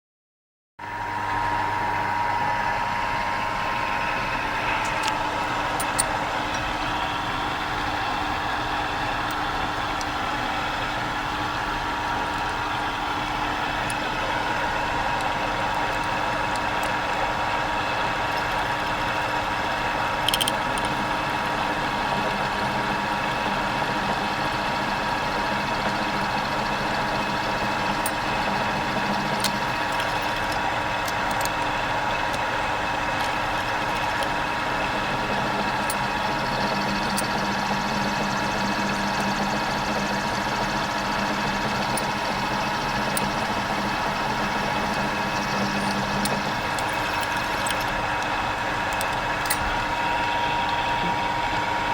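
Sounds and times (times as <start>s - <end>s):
small electric motor humming: 4.2s - 51.6s
sharp clicks: 20.2s - 21.0s.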